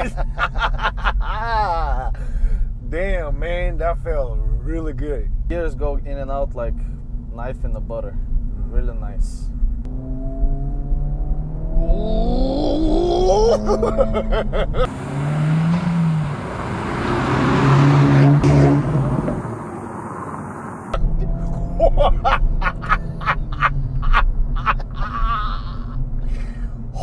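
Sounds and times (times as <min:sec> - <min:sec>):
car accelerating and passing by: 0:09.9 - 0:24.0
car engine pulling from cabin: 0:13.6 - 0:24.6.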